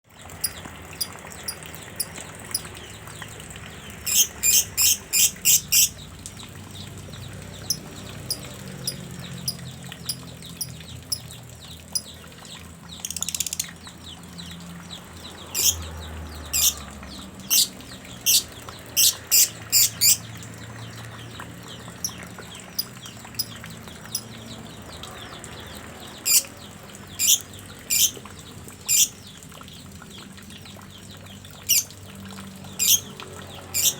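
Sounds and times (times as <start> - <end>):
songbird high chirps: 3.9 - 6.2, 6.8 - 28.2, 28.8 - 29.3, 31.3 - 32.0, 32.7 - 33.9
bird harsh rasping call: 4.1 - 6.0, 15.6 - 15.8, 16.6 - 16.8, 17.5 - 20.2, 26.3 - 26.5, 27.2 - 28.2, 28.9 - 29.2, 31.7 - 31.9, 32.8 - 33.0.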